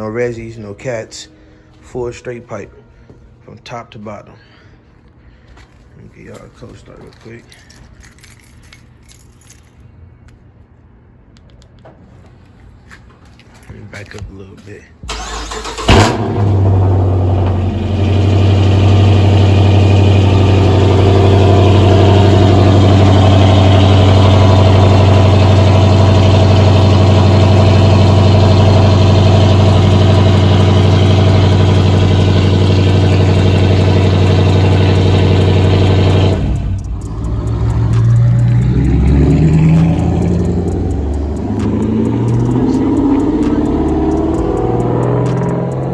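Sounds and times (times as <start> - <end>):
car engine idling loudly: 15.3 - 45.4.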